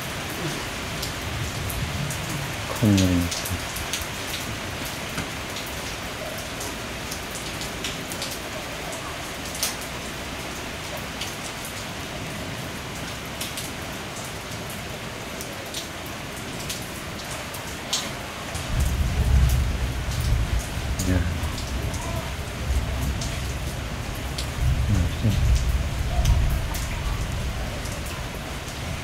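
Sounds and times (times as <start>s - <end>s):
heavy rain falling: 0.0s - 29.0s
sharp drips: 2.6s - 8.4s.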